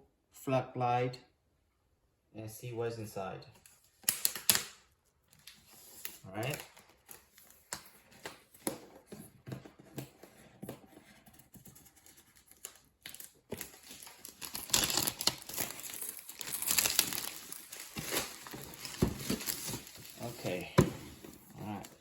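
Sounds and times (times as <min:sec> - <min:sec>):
packaging crinkling and tearing: 0:03.8 - 0:08.5, 0:11.9 - 0:20.7
packaging clicks and rustles: 0:03.8 - 0:22.0.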